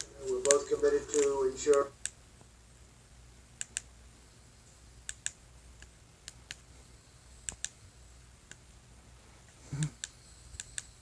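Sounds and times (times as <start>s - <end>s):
sharp clicks and taps: 0.0s - 2.5s, 3.6s - 3.9s, 5.0s - 6.6s, 7.4s - 7.8s
low steady hum: 0.0s - 11.0s.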